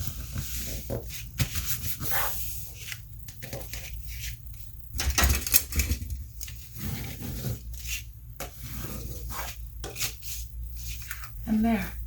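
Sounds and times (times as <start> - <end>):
paper rustling and rubbing: 0.0 - 4.7, 6.5 - 11.4.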